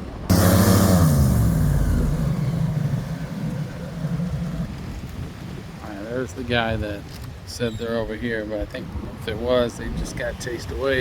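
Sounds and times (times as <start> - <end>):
engine with falling pitch: 0.3 - 4.7.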